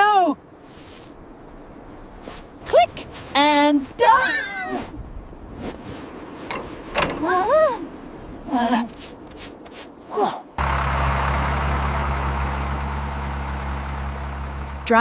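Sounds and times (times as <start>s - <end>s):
vehicle engine humming: 10.6s - 15.0s.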